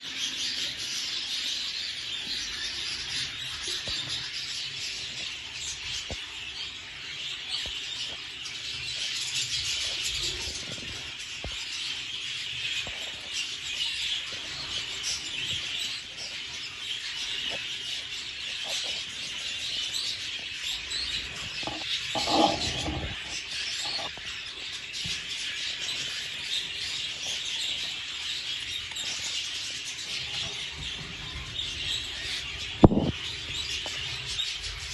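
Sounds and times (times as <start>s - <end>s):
budgerigar chattering and warbling: 21.4s - 24.2s.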